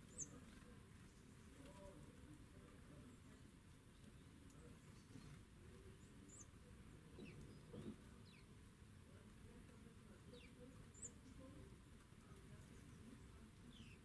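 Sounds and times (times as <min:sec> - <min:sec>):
faint high bird chirps: 0:00.0 - 0:00.5, 0:03.9 - 0:08.5, 0:10.3 - 0:11.6.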